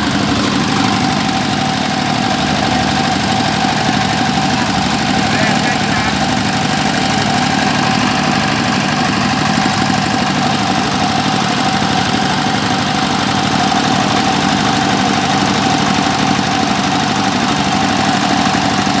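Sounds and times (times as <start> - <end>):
drilling machine engine running: 0.0 - 19.0.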